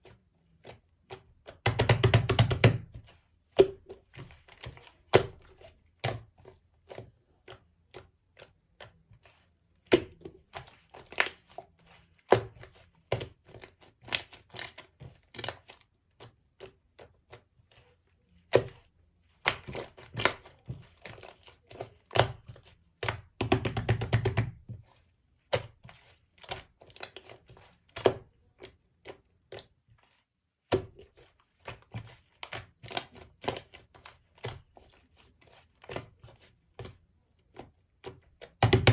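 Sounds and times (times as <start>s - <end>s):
slime kneaded by hand: 0.0s - 38.9s.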